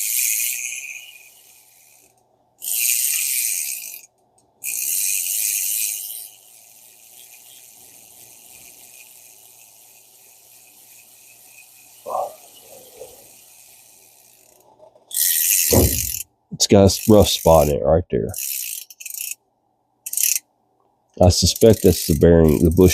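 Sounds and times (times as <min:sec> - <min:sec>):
fishing reel gears cranking: 0:00.0 - 0:19.4, 0:20.0 - 0:20.5, 0:21.2 - 0:22.9
short knock: 0:15.7 - 0:16.2.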